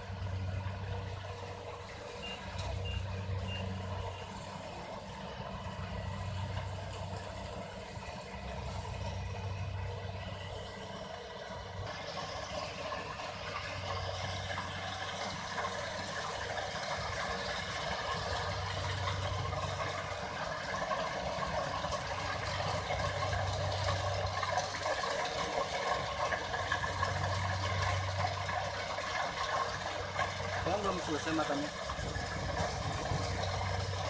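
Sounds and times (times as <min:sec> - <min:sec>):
combine harvester running: 0:00.0 - 0:34.0.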